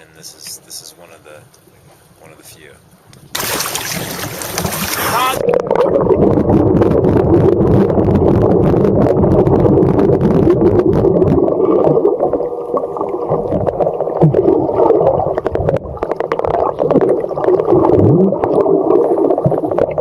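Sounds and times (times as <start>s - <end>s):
boat engine and water rushing: 0.0s - 14.4s.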